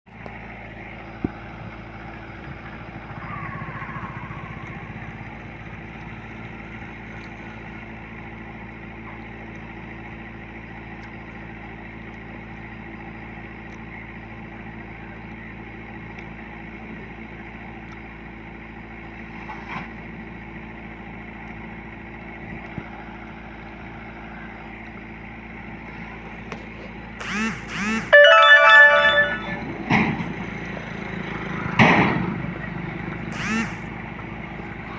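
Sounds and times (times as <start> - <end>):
harvester engine running: 0.1 - 34.9
pulsing music-like tones: 27.8 - 29.8.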